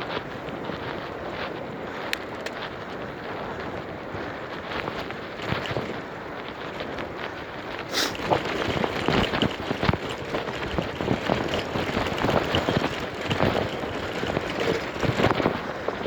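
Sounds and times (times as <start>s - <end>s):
bicycle knocks and rattles: 0.0s - 16.0s
wind noise: 0.0s - 16.0s
tyre rolling noise: 7.8s - 16.0s.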